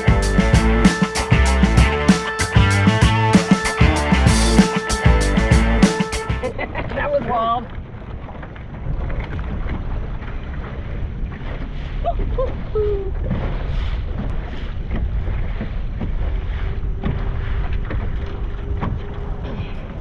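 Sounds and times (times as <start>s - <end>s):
short pitched sounds: 0.0s - 6.5s
choppy water: 6.4s - 20.0s.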